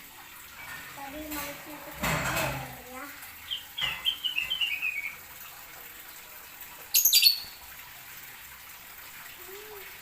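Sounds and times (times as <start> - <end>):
sharp high bird chirp: 3.5 - 5.2, 7.0 - 7.6.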